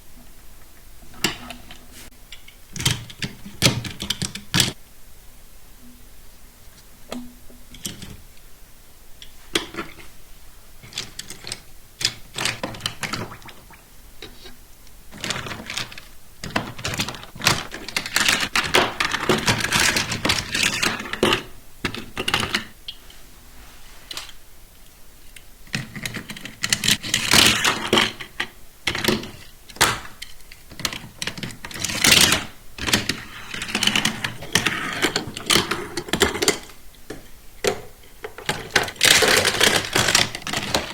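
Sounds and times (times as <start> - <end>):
plastic toy parts clicking: 38.4 - 40.9.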